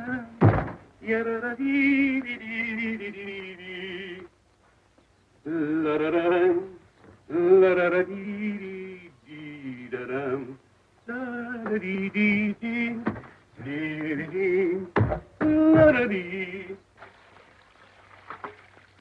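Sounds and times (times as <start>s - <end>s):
man singing unaccompanied: 0.0s - 4.4s, 5.4s - 17.0s
sharp thud: 0.4s - 0.9s, 15.0s - 16.0s.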